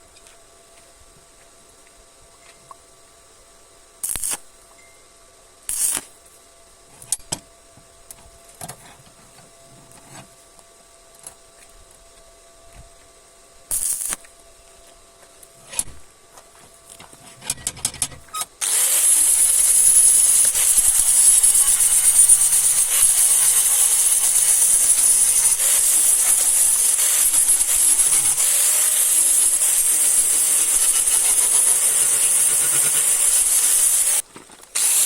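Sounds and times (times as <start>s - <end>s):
short hiss of air: 5.7s - 6.2s
spray gun hissing: 18.6s - 34.2s.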